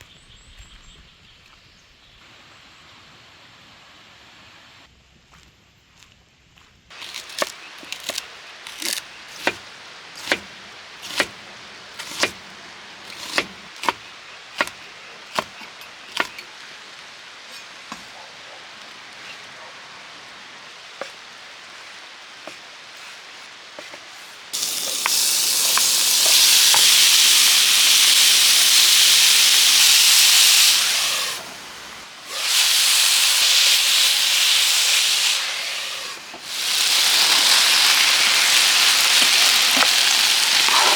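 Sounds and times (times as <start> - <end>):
faint hiss: 6.9 - 40.9
food sizzling in a hot pan: 24.5 - 40.9.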